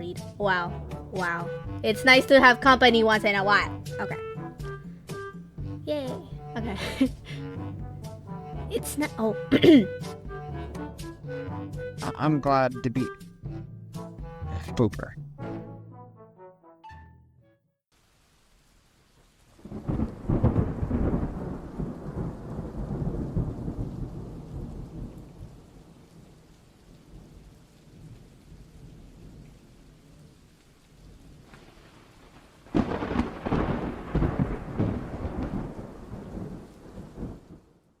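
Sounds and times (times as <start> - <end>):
thunder rumbling: 0.0 - 12.6, 19.6 - 38.0
rain falling: 0.0 - 15.0, 17.9 - 38.0.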